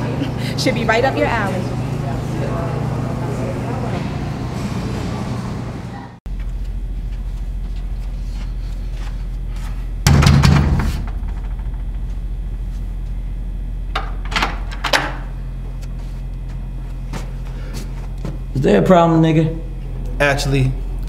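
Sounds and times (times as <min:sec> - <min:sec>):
steady low hum: 0:00.0 - 0:21.0
heavy thud: 0:10.0 - 0:12.4
knocks on a door: 0:10.1 - 0:11.9.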